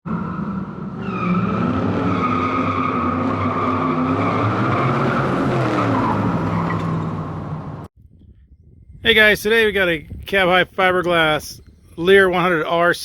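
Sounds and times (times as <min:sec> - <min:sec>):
high squeal: 0:00.1 - 0:07.0.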